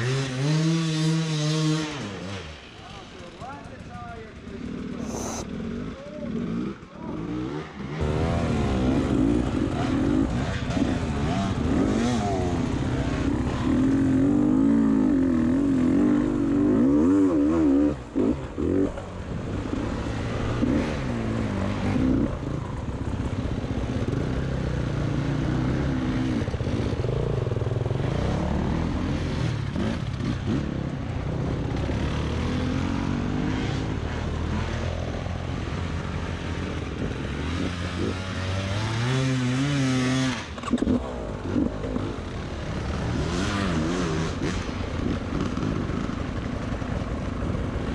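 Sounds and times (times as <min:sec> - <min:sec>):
dirt bike engine revving: 0:37.2 - 0:46.2.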